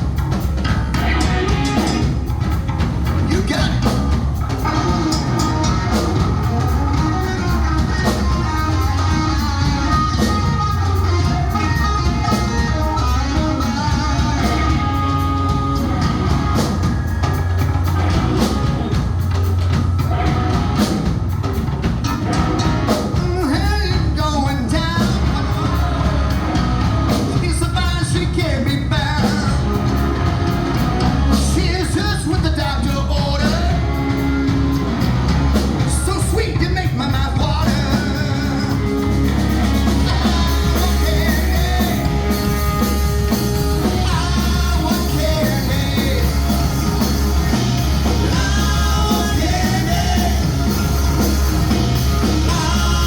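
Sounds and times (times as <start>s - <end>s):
rock band playing: 0.0s - 53.0s
person singing: 22.4s - 53.0s.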